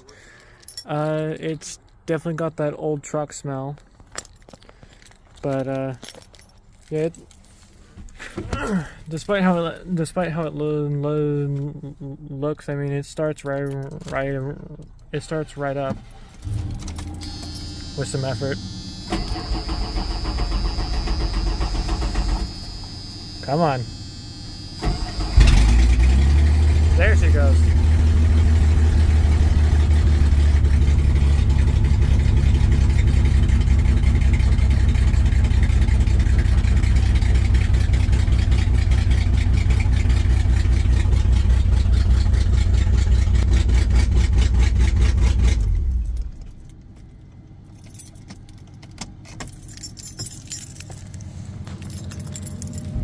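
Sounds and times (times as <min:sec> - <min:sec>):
car engine idling: 0:15.8 - 0:53.0.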